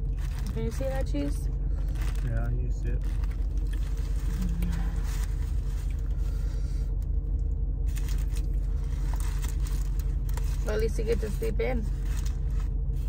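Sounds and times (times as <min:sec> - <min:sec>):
car engine rumble inside cabin: 0:00.0 - 0:13.0.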